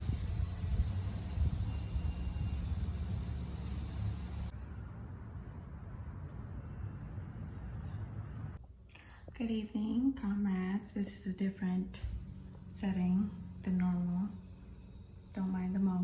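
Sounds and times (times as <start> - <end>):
lawn mower rumble: 0.0 - 4.5
high-pitched insect trilling: 0.0 - 8.6.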